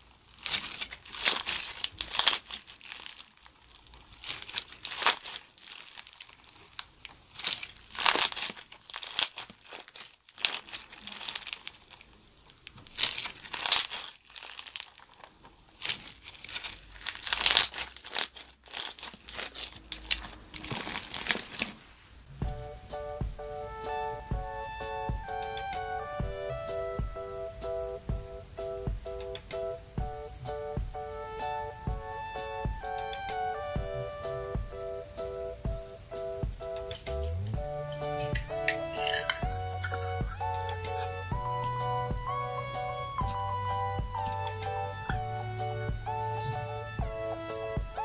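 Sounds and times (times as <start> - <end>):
slime with beads crackling: 0.0 - 22.2.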